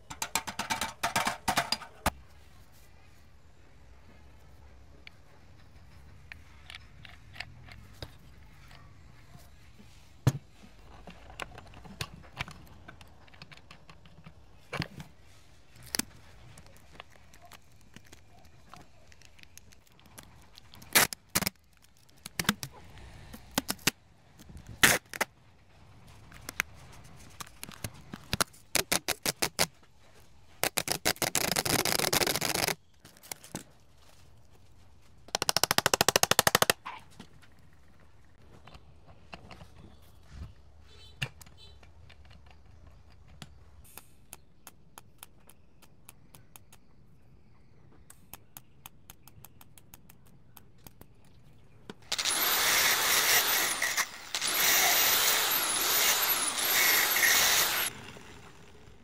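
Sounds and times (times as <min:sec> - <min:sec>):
metal tools clinking and knocking: 0:00.0 - 0:02.1.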